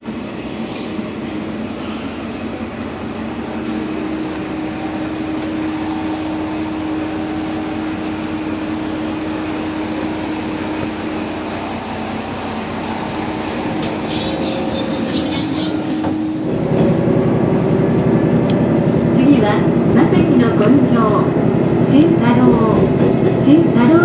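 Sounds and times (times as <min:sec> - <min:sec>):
railcar rumble with engine hum: 0:00.0 - 0:24.0
second steady hum: 0:00.1 - 0:24.0.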